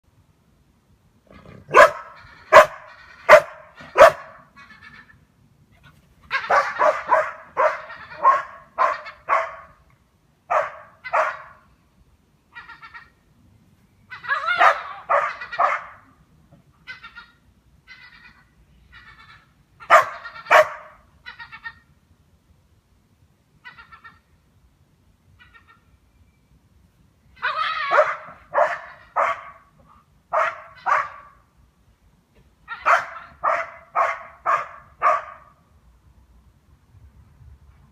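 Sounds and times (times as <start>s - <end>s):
dog barking: 1.7s - 4.4s, 6.4s - 9.8s, 10.5s - 11.5s, 14.6s - 16.0s, 19.9s - 20.9s, 27.9s - 29.6s, 30.3s - 31.3s, 32.8s - 35.5s.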